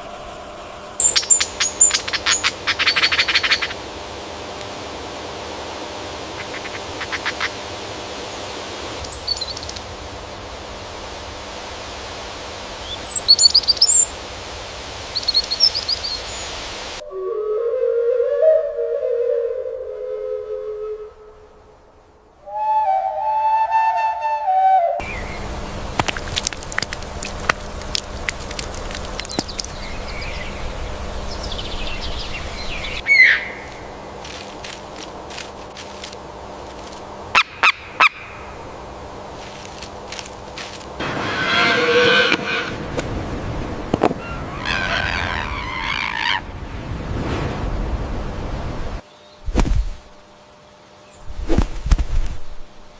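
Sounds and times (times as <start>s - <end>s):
outdoor ambient hiss: 0.0s - 52.9s
bird calls: 1.0s - 3.8s, 6.3s - 7.7s, 9.0s - 9.9s, 12.8s - 14.1s, 15.1s - 16.6s, 25.0s - 25.6s, 28.2s - 34.0s, 37.3s - 38.5s, 44.1s - 46.5s
bird chirping rapidly: 1.0s - 3.8s, 9.0s - 9.9s, 12.8s - 14.1s, 15.1s - 16.6s.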